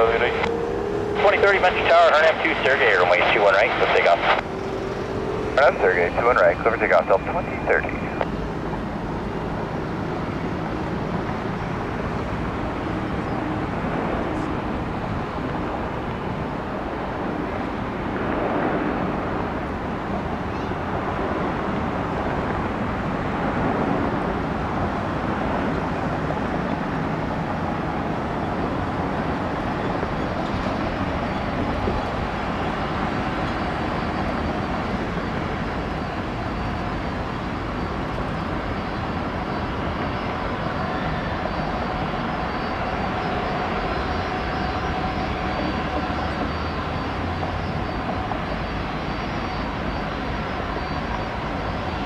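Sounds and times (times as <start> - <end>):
jet airliner engine rumble: 0.0 - 52.0.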